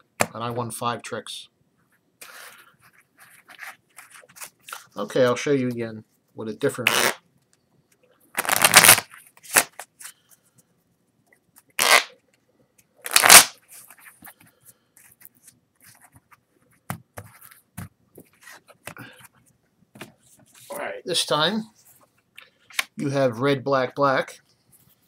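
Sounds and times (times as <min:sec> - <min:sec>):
playing cards riffling: 0:08.4 - 0:10.3, 0:11.7 - 0:12.1, 0:13.0 - 0:16.2.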